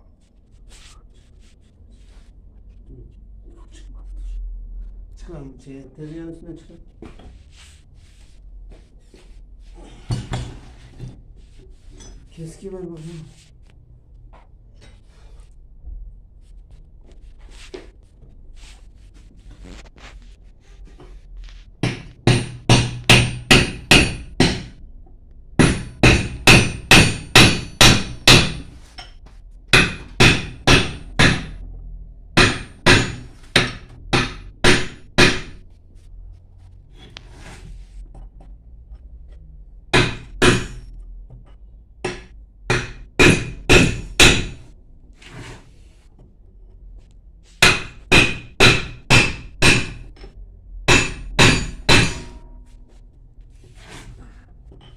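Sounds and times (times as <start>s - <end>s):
hammer striking chisel on metal: 21.8s - 24.8s, 25.6s - 31.6s, 32.4s - 35.6s, 39.9s - 41.0s, 42.0s - 44.7s, 47.6s - 52.6s.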